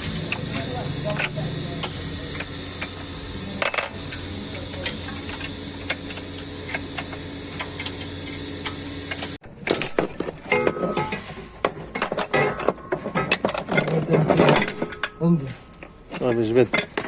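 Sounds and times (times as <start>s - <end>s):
hand tools clinking on metal: 0.0s - 2.9s, 9.6s - 17.0s
steady low hum: 0.0s - 17.0s.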